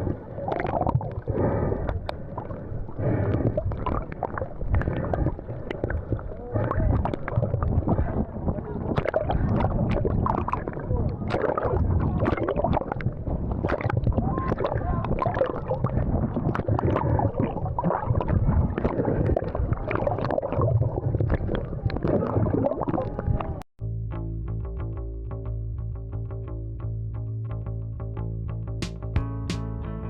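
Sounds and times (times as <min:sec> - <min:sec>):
sea water sloshing and splashing: 0:00.0 - 0:23.6
indistinct voices: 0:04.7 - 0:13.0.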